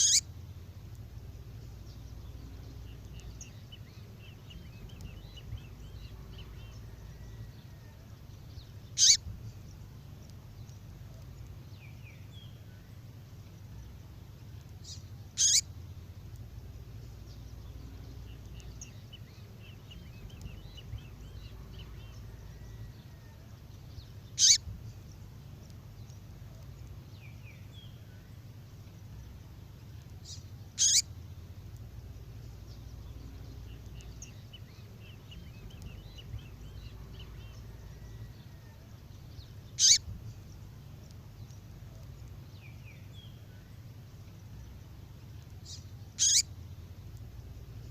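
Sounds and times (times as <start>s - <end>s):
high-pitched songbird calls: 0.0s - 0.5s, 8.6s - 9.9s, 14.8s - 15.8s, 17.3s - 25.1s, 30.2s - 31.3s, 32.4s - 40.7s, 41.4s - 47.9s
faint chirping: 0.0s - 47.9s
low steady hum: 0.0s - 47.9s.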